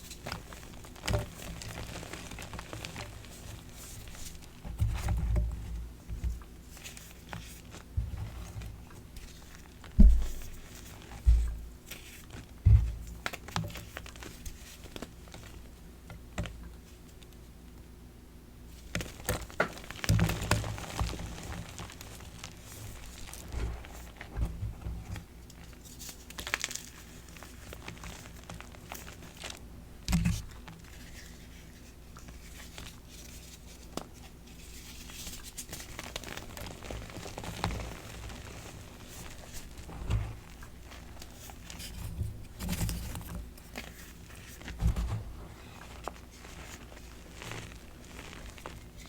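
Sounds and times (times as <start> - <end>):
soft thud: 10.0 - 10.4, 11.3 - 11.7.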